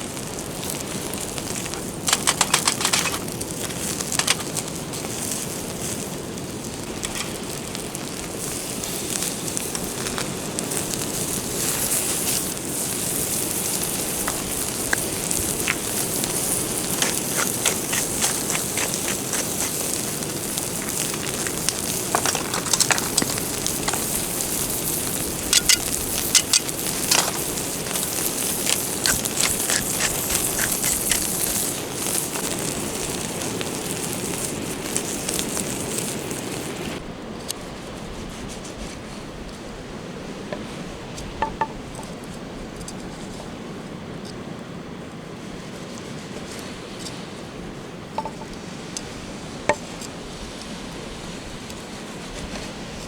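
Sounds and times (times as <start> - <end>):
campfire crackling and hissing: 0.0 - 53.0
sharp fire pops: 0.1 - 6.1, 6.7 - 37.0.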